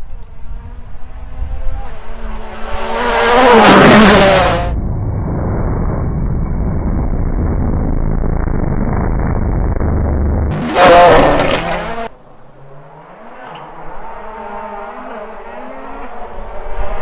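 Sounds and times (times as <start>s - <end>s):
rally car engine at full throttle: 0.1s - 17.0s
muffled low rumble: 4.3s - 12.1s.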